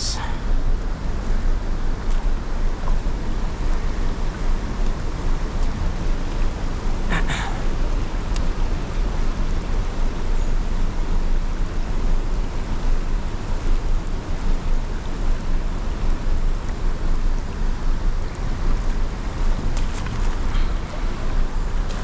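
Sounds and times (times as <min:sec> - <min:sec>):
river rapids rushing: 0:06.0 - 0:13.2.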